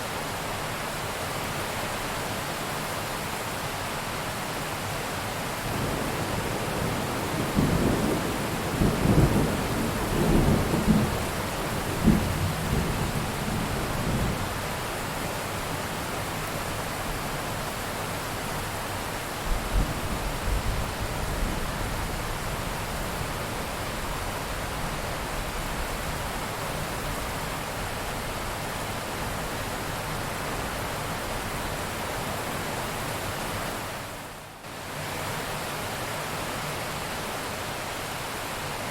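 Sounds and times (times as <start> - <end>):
thunder rumbling: 5.8 - 14.4.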